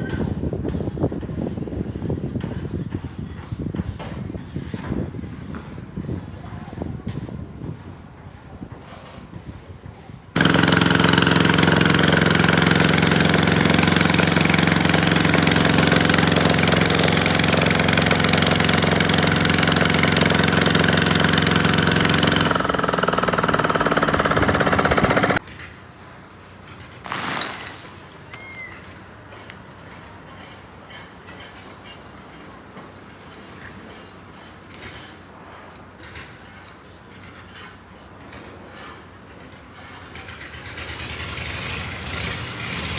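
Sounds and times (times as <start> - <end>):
construction machinery engine: 10.4 - 30.4, 40.0 - 42.9.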